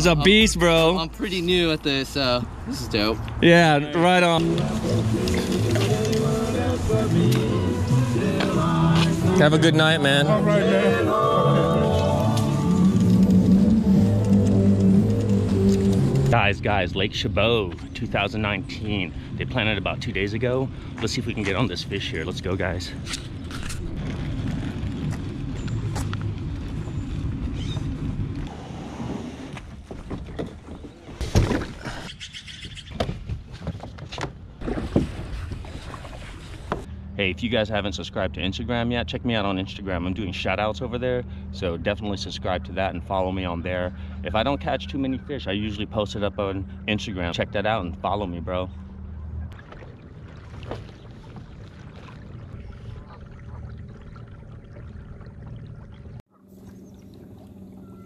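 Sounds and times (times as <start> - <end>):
low wind rumble: 0.0 - 33.6
water splashes: 34.6 - 36.9, 49.0 - 58.0.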